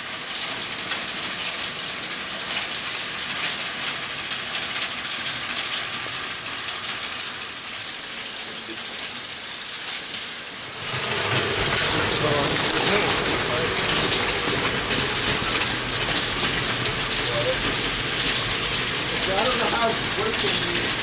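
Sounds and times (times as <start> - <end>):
hay elevator chain rattling: 10.9 - 21.0.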